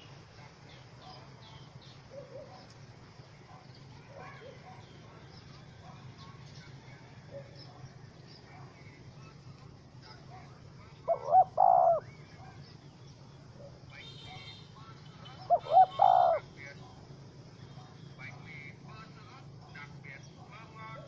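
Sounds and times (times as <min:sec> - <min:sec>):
dove cooing: 0:10.2 - 0:12.6, 0:15.3 - 0:16.6.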